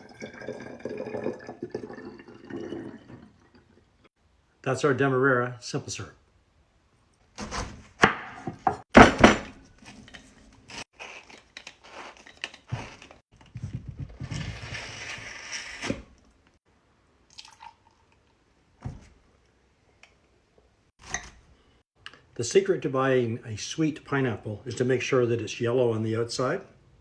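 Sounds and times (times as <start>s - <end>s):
knife crunching through pineapple: 10.7s - 13.2s.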